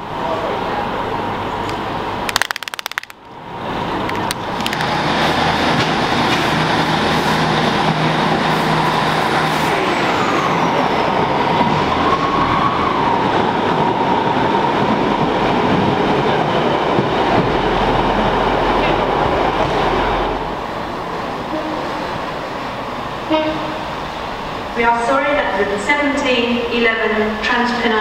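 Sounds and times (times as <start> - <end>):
diesel train passing: 0.0 - 28.0.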